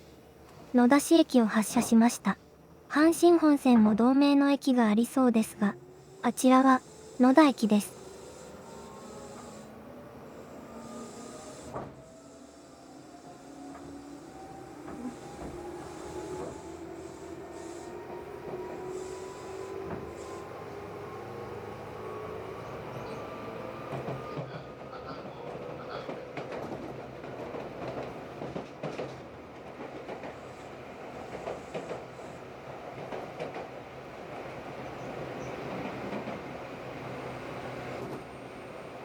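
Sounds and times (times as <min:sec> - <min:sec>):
train rolling noise: 0:00.0 - 0:39.0
electric train motor whine: 0:05.7 - 0:24.4.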